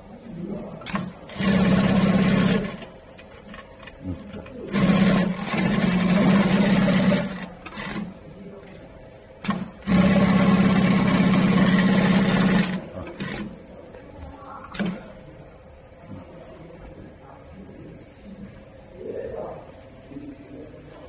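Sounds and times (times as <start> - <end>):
industrial sewing machine stitching: 0.8 - 8.2, 9.4 - 13.6.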